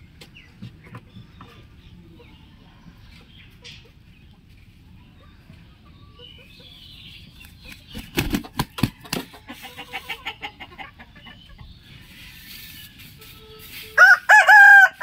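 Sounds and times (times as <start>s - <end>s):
chickens clucking: 0.0s - 14.9s
sharp taps or flaps: 7.7s - 9.2s
rooster crowing: 14.0s - 15.0s.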